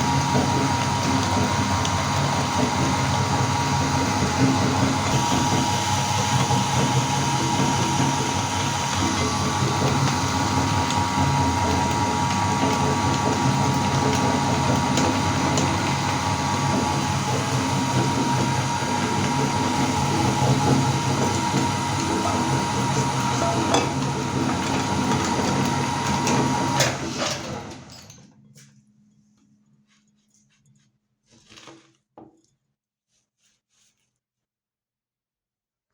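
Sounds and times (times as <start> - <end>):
electric meat grinder running: 0.0 - 28.2.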